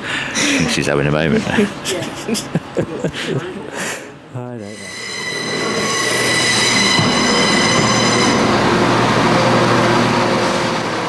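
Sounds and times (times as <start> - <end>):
low drone: 4.7 - 11.0
train brakes squealing: 4.7 - 11.0.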